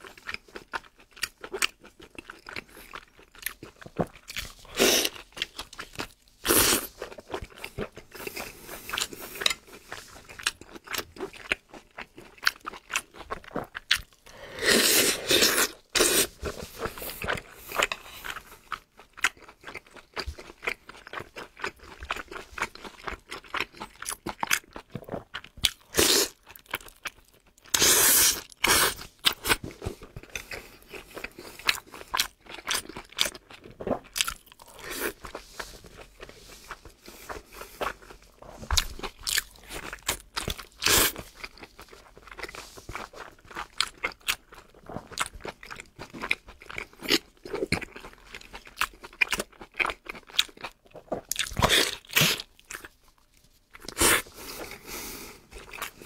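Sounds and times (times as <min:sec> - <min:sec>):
person biting and chewing food: 0:27.6 - 0:53.0.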